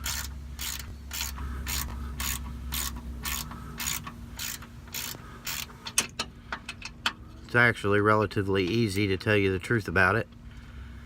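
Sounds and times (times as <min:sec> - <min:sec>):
hand ratchet clicking: 0:00.0 - 0:07.0.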